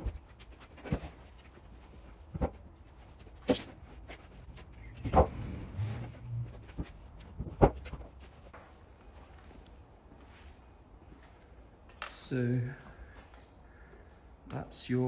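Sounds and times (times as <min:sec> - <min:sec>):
oak timbers knocking and thudding: 0:02.3 - 0:05.4, 0:06.2 - 0:08.5.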